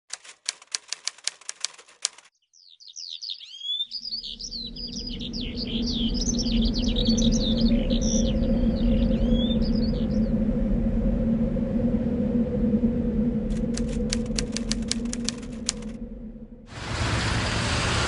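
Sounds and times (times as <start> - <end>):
sharp clicks: 0.1 - 2.3, 13.5 - 16.0
small birds chirping: 1.7 - 10.3.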